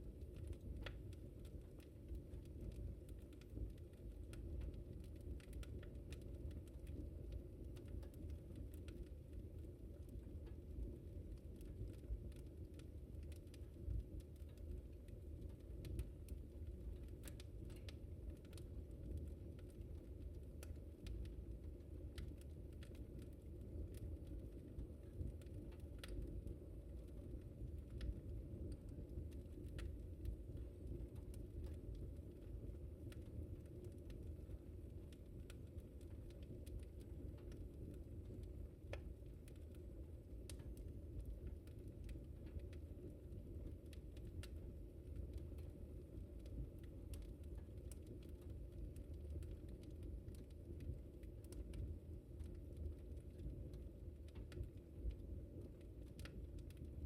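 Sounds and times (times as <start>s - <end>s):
fire flames rumbling: 0.0s - 57.0s
wood fire crackling and popping: 0.0s - 57.0s.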